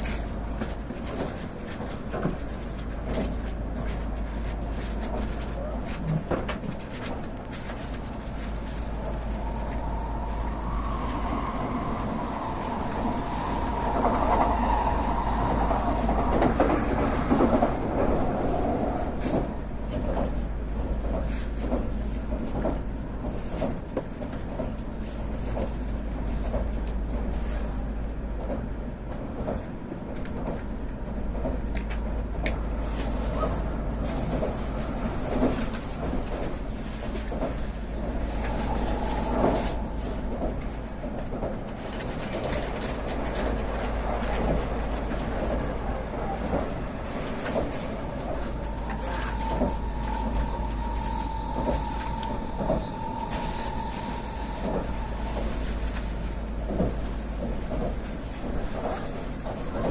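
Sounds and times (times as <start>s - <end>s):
train running low rumble: 0.0s - 59.9s
high whine: 8.2s - 19.0s, 37.7s - 41.3s, 46.9s - 57.6s.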